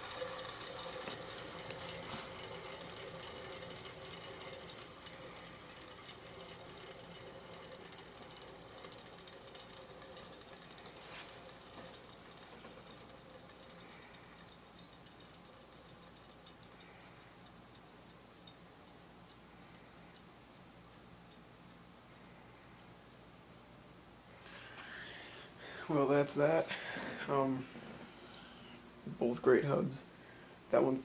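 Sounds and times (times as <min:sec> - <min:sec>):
bicycle freewheel ticking: 0:00.0 - 0:23.2.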